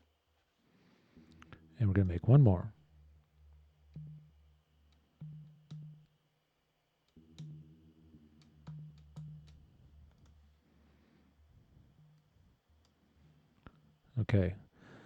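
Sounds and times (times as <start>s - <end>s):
low synthesizer bass notes: 7.2s - 10.6s
faint clicks: 8.4s - 11.0s.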